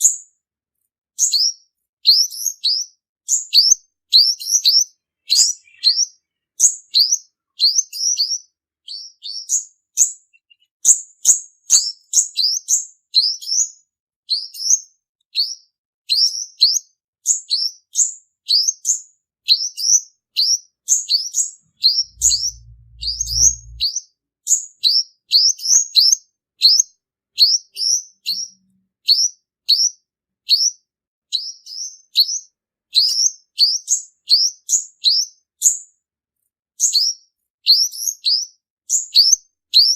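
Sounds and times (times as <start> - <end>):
sunbird chirping: 4.4 - 8.3, 21.1 - 23.9.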